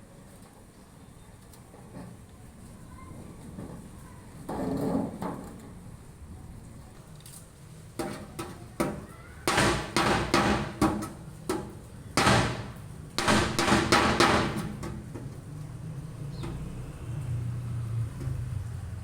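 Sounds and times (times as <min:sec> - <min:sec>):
tin cans banging and clattering: 0:08.0 - 0:15.3.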